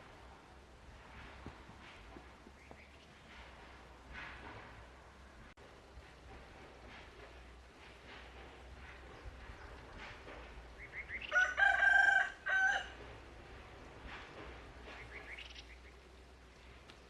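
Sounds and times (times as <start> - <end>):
rooster crowing: 11.2 - 13.0.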